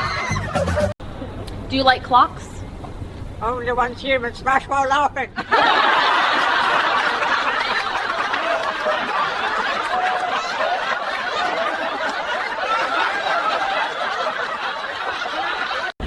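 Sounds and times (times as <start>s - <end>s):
crowd laughing: 0.0s - 1.0s, 5.4s - 16.0s.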